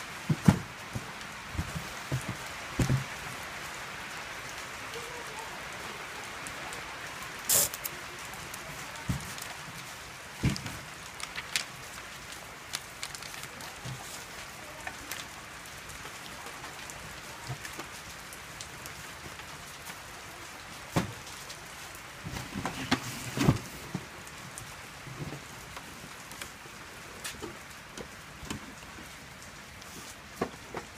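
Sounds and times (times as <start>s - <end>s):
rain pattering and dripping: 0.0s - 30.9s.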